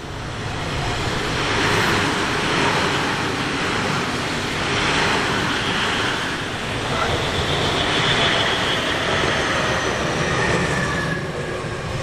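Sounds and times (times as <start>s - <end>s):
train passing by: 0.0s - 12.0s.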